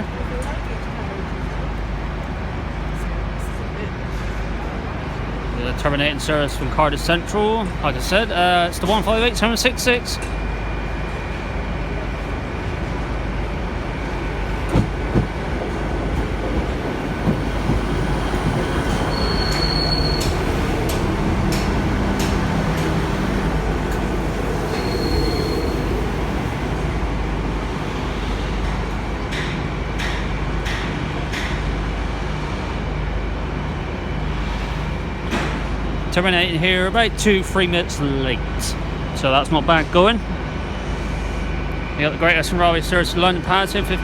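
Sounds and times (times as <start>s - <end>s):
train rumbling to a stop: 0.0s - 44.0s
wheel or brake squeals: 18.2s - 20.8s, 24.6s - 26.2s.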